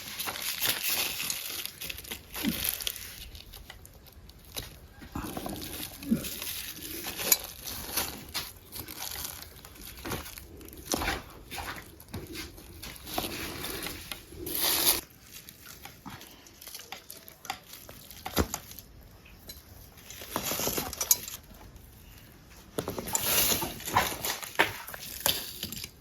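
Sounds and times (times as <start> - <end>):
dry leaves rustling and crunching: 0.0 - 19.0, 19.7 - 21.5.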